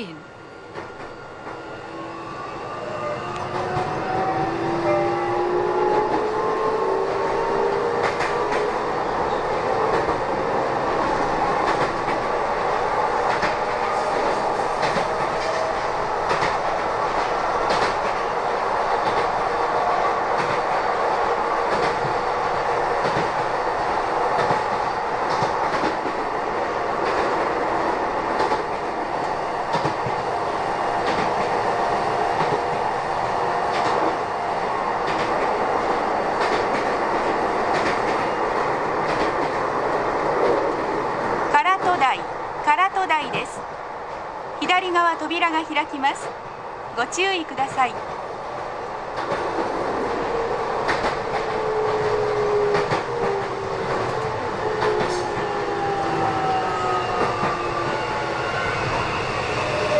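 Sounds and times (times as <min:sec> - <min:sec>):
train rumble inside car: 0:03.0 - 0:43.6, 0:47.3 - 0:59.9.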